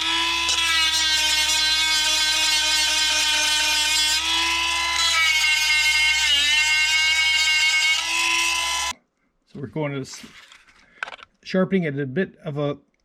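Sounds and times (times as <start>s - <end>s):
electric chain sharpener whining: 0.0s - 8.9s.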